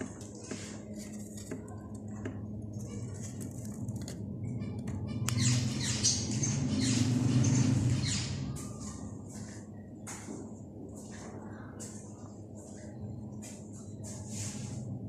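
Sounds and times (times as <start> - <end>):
steady low hum: 0.0 - 15.0
birds squawking: 5.1 - 8.5.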